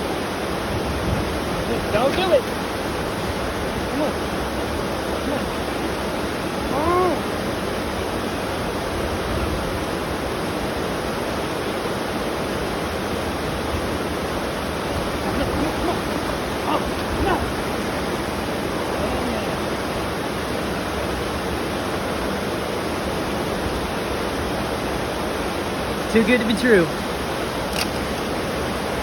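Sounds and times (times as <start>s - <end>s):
steady loud rushing noise: 0.0s - 29.0s.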